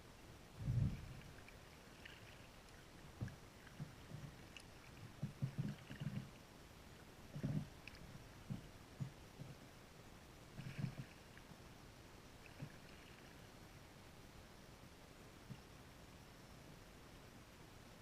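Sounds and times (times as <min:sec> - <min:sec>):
paddle strokes: 0:00.6 - 0:06.4, 0:10.5 - 0:11.5, 0:12.4 - 0:13.5
small water splashes: 0:00.9 - 0:06.4, 0:12.4 - 0:13.4.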